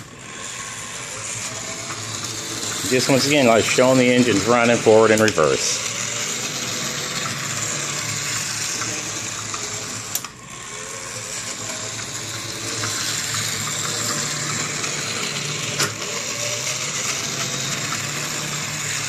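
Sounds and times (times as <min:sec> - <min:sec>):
model train motor whirring: 0:00.0 - 0:19.0.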